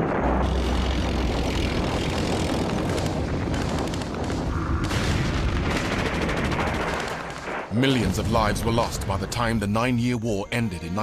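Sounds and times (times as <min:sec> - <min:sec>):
explosions: 0:00.0 - 0:09.6
aircraft rumble: 0:00.0 - 0:09.7
rapid gunfire: 0:01.4 - 0:07.7.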